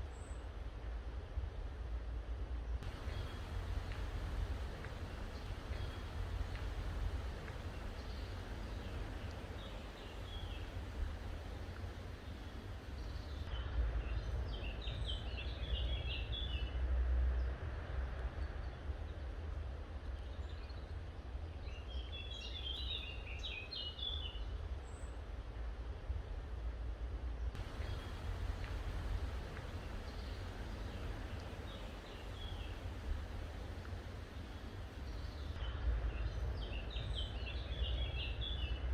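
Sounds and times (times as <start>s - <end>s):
songbird chirping: 2.8s - 13.5s, 27.6s - 38.8s
steady low rumble: 2.8s - 15.3s, 27.6s - 38.9s.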